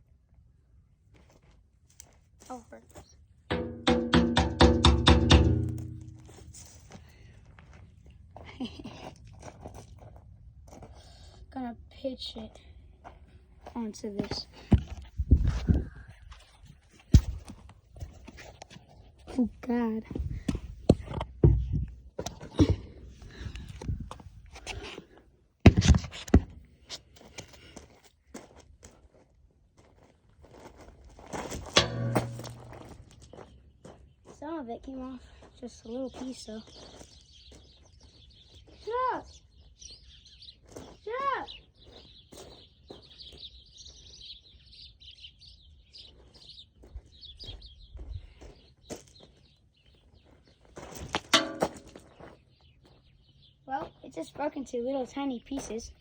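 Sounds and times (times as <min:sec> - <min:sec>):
figurine knocking on hard surface: 0:03.5 - 0:06.3
small birds chirping: 0:35.0 - 0:50.7, 0:52.0 - 0:56.0.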